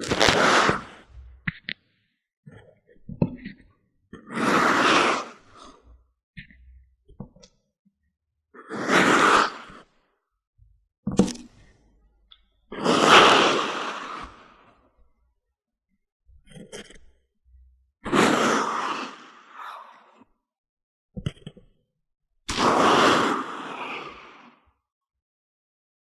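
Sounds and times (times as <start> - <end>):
sand rushing: 0.0 - 1.0.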